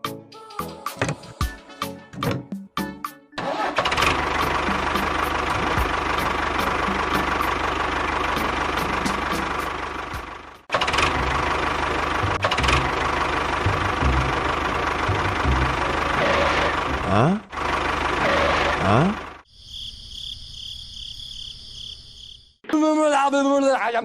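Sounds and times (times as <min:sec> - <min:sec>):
small engine running: 0:03.4 - 0:19.4.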